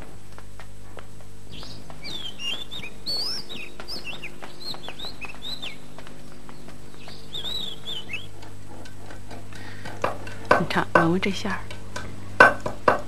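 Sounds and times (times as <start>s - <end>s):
faint steady hum: 0.0s - 13.0s
songbird whistled chirps: 1.5s - 5.9s, 6.9s - 8.4s.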